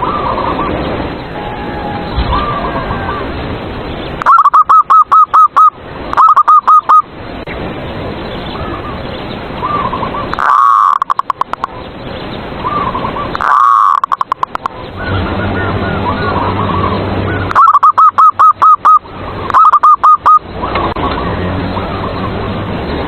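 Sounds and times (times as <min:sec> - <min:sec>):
loud distorted dove cooing: 0:01.4 - 0:03.4, 0:04.2 - 0:07.1, 0:15.8 - 0:21.2.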